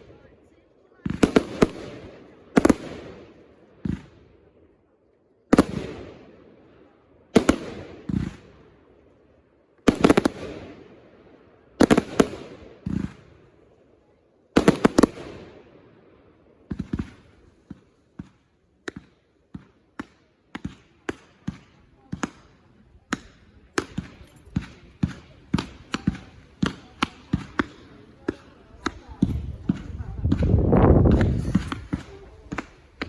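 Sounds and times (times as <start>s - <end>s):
fireworks banging: 9.9s - 10.7s, 11.8s - 13.3s, 14.6s - 15.5s, 16.6s - 33.0s.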